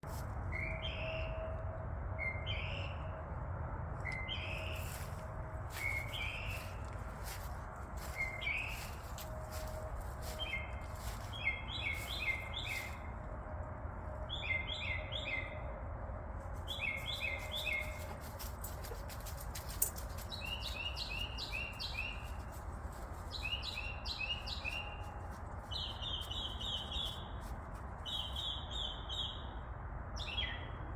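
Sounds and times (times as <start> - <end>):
steady low rumble: 0.0 - 14.4
bird chirping: 5.7 - 7.4, 10.3 - 13.1, 16.7 - 29.6.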